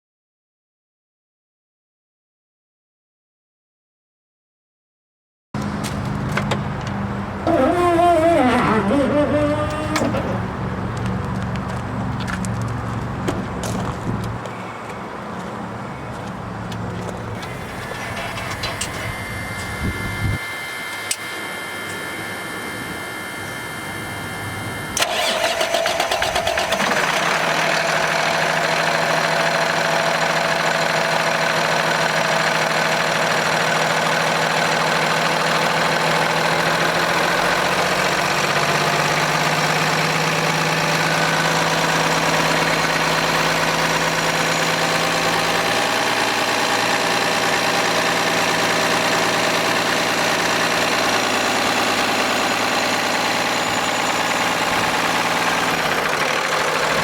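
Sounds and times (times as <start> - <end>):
diesel truck engine idling: 15.7 - 57.0.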